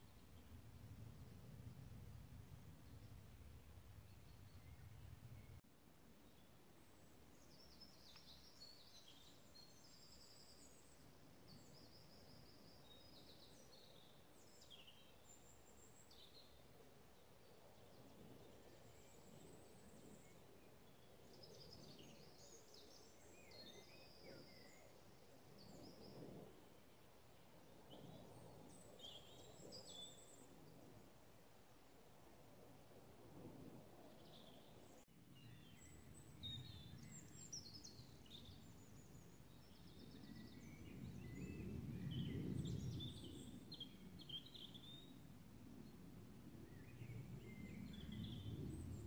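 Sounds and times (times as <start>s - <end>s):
songbirds singing: 34.1s - 45.2s, 46.6s - 49.0s.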